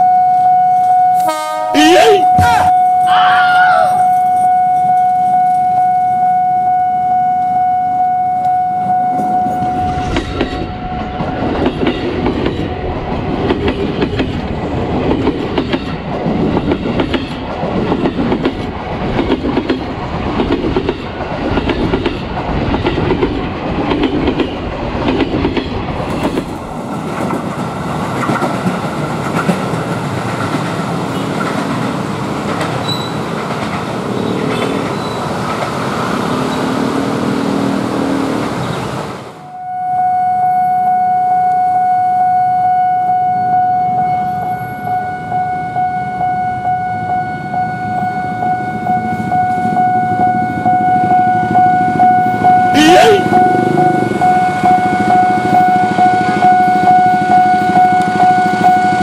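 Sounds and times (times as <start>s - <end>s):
steady warning tone: 0.0s - 11.9s, 39.4s - 59.0s
approaching train rumble: 8.6s - 39.6s, 46.9s - 59.0s
train wheels clickety-clack: 11.2s - 35.9s.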